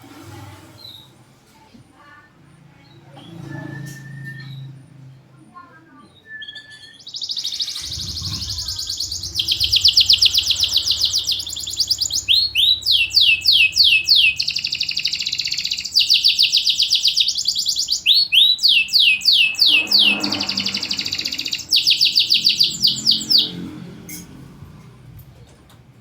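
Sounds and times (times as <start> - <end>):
canary singing trills: 6.0 - 24.3.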